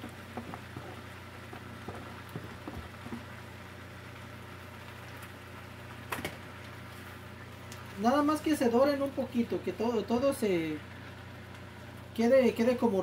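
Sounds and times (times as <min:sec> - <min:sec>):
plastic spatula tapping and scraping: 0:00.0 - 0:03.3
meat and vegetables sizzling: 0:00.0 - 0:13.0
steady low hum: 0:00.0 - 0:13.0.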